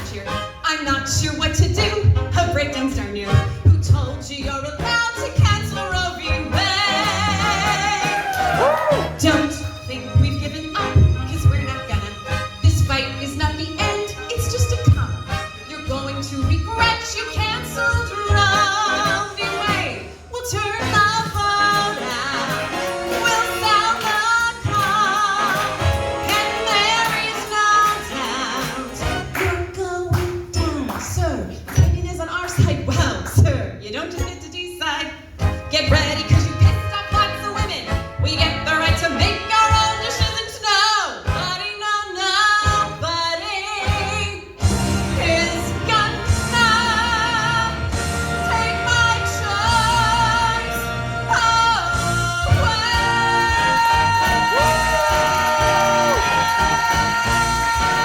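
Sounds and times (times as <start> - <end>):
instrumental accompaniment: 0.0 - 31.0, 35.3 - 58.0
woman singing with vibrato: 0.0 - 33.1, 33.8 - 58.0
person singing show tune: 45.2 - 58.0.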